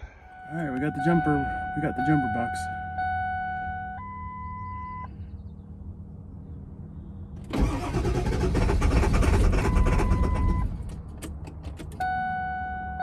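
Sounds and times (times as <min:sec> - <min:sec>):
steady electronic beep: 0:00.3 - 0:05.1
truck starter cranking engine: 0:07.5 - 0:11.4.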